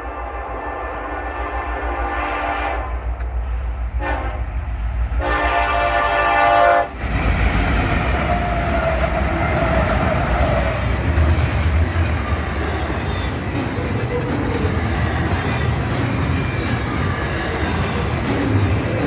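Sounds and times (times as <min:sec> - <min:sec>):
locomotive air horn: 0:00.0 - 0:03.0, 0:04.0 - 0:04.5, 0:05.2 - 0:07.0
train passing rumble: 0:00.0 - 0:19.0.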